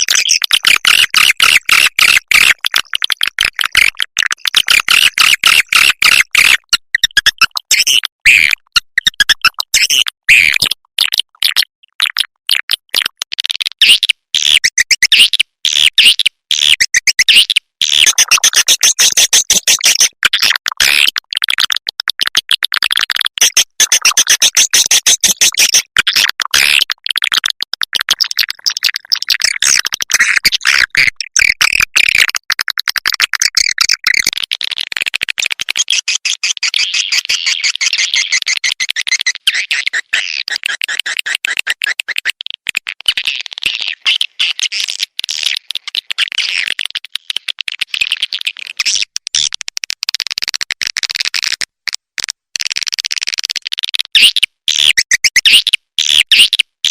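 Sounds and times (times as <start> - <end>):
swiftlet chirps and clicks: 23.4 - 25.9, 35.9 - 42.3.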